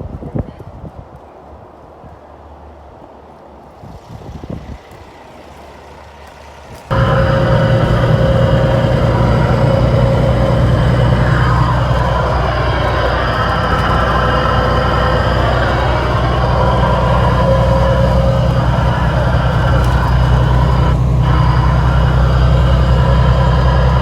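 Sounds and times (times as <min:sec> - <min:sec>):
low hum: 0:06.9 - 0:24.0
truck diesel engine running: 0:06.9 - 0:24.0.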